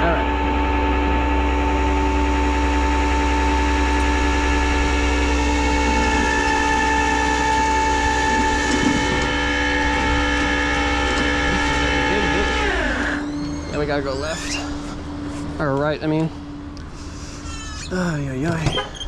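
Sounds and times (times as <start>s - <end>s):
engine low rumble: 0.0s - 19.0s
hydraulic pump whine: 0.0s - 19.0s.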